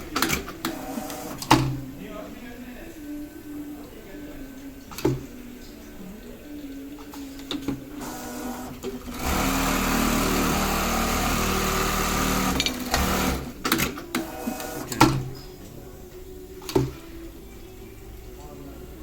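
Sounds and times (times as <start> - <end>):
sewing machine stitching: 0.0 - 1.8, 7.4 - 15.3.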